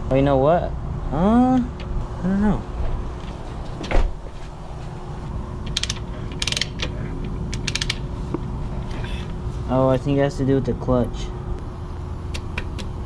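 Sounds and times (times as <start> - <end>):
kick starter ratchet clicking: 5.6 - 8.1.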